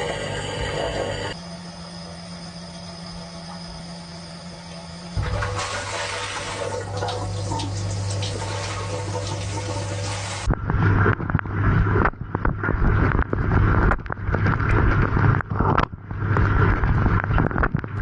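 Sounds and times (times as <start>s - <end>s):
dishwasher humming: 0.0s - 11.9s
water spraying: 5.2s - 10.5s.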